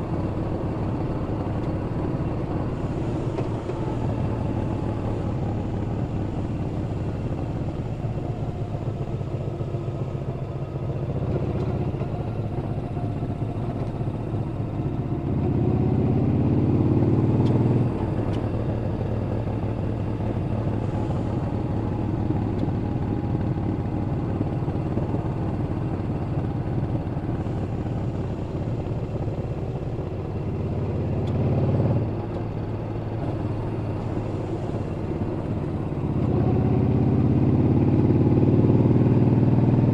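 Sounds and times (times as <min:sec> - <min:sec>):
motorcycle engine revving: 0:10.9 - 0:32.3, 0:33.0 - 0:39.9.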